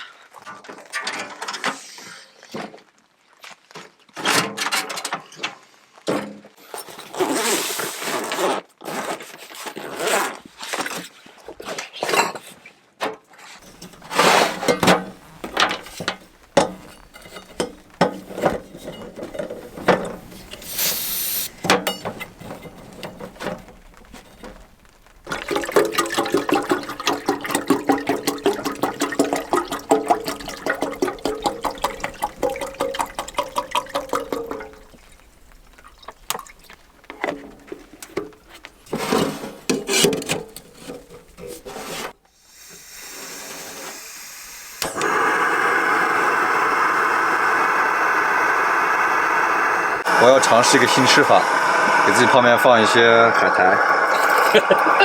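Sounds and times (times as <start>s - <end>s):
knocks and clatter: 13.6s - 20.7s, 21.5s - 41.8s
water pouring and running: 13.6s - 55.0s.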